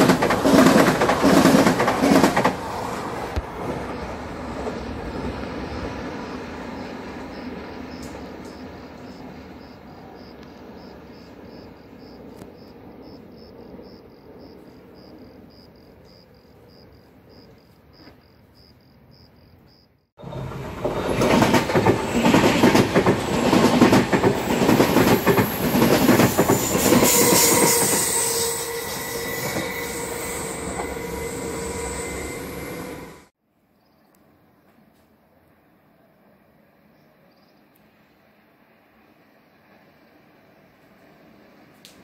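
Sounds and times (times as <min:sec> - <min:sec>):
train coaches rushing past: 0:00.0 - 0:18.3, 0:20.2 - 0:33.3
distant train rumble: 0:00.0 - 0:33.3
high wheel squeal: 0:26.5 - 0:33.3.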